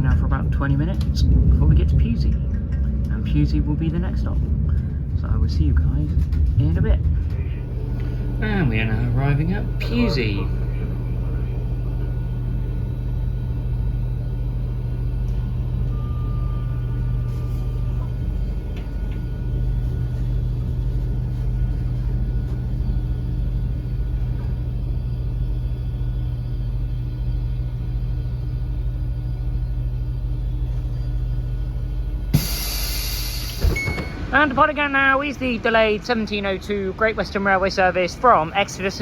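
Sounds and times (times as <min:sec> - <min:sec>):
train interior rumble: 0:00.0 - 0:39.0
faint short whine: 0:26.4 - 0:34.3.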